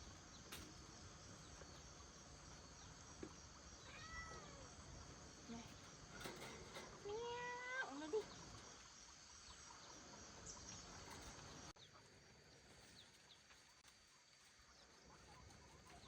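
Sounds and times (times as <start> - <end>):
kitten meowing faintly: 3.8 - 4.7.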